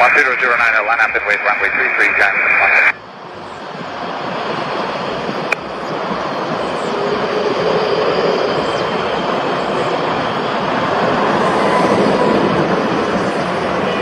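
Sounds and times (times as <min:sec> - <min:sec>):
light aircraft engine running: 0:03.0 - 0:14.0.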